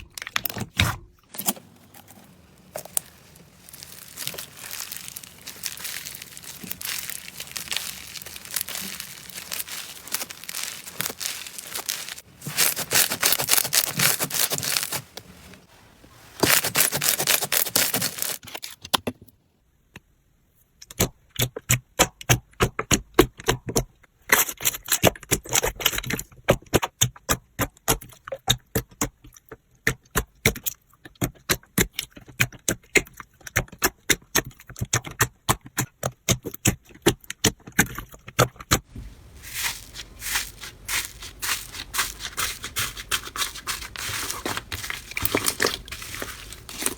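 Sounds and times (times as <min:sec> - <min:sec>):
slime crackling: 0:01.4 - 0:18.4, 0:38.9 - 0:46.9.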